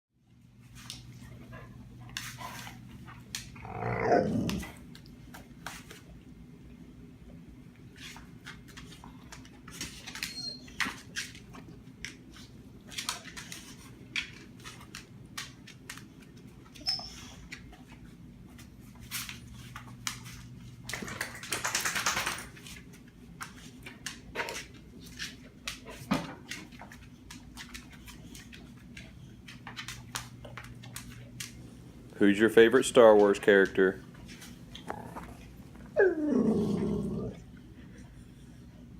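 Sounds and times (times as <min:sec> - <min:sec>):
dog clicks and snuffles: 0:19.1 - 0:31.8.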